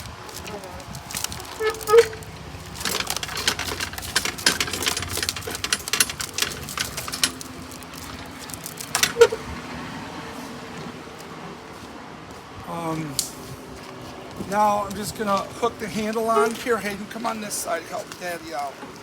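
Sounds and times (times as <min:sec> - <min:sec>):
bubble wrap crinkling: 0:00.0 - 0:09.4.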